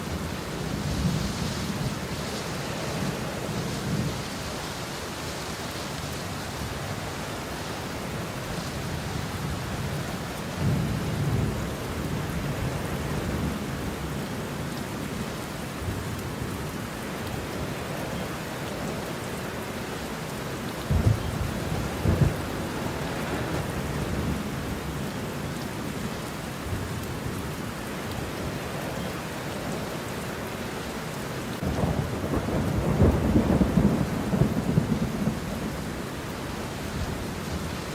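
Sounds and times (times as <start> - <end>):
heavy rain: 0.0 - 37.9
sharp thunder claps: 20.9 - 22.4
thunder rumbling: 20.9 - 25.0, 31.6 - 36.0.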